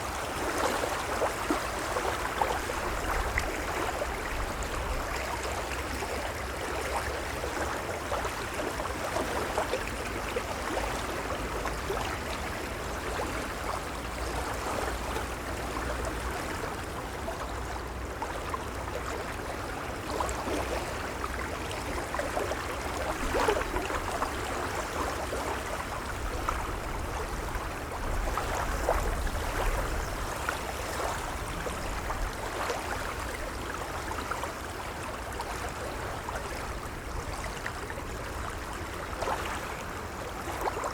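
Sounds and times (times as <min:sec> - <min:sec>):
small splashes and trickles: 0:00.0 - 0:40.9
waves lapping: 0:19.5 - 0:40.9.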